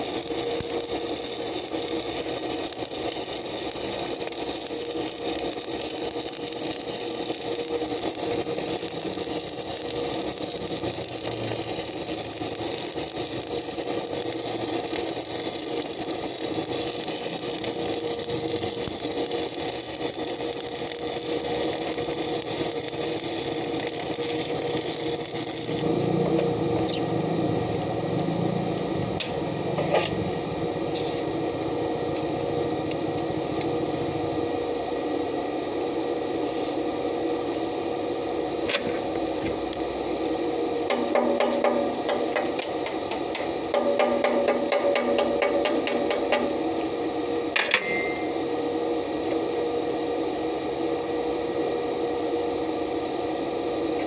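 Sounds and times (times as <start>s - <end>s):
welding arc crackling: 0.0s - 30.2s, 38.6s - 48.4s.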